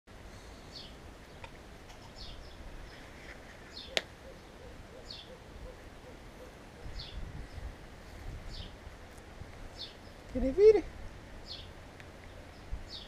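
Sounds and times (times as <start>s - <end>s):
bird chirping: 0.7s - 7.7s, 8.5s - 8.8s, 9.7s - 10.8s, 11.4s - 13.0s.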